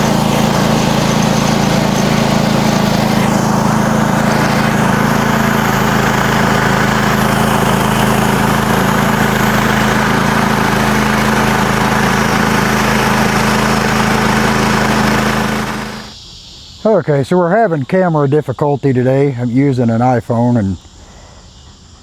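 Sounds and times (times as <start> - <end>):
sawmill engine running: 0.0 - 16.2.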